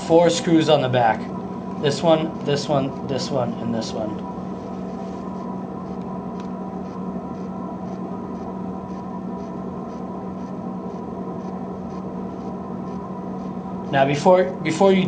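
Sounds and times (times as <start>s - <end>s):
low hum with faint hiss: 0.0s - 15.0s
faint regular ticks: 5.9s - 13.5s.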